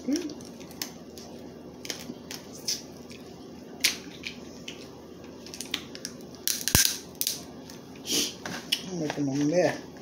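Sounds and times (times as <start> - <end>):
crab shells cracking: 0.1 - 2.9, 3.8 - 7.5.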